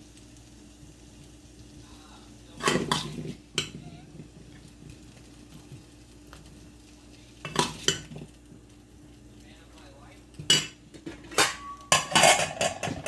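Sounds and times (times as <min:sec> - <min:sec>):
faint steady hum: 0:00.0 - 0:13.0
utensils clattering against cookware: 0:10.4 - 0:13.0.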